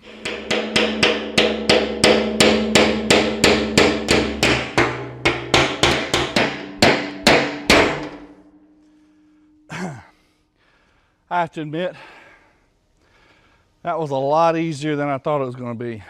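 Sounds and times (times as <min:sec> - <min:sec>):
hammer striking chisel on metal: 0:00.0 - 0:08.5
metal tank ringing: 0:00.0 - 0:09.7.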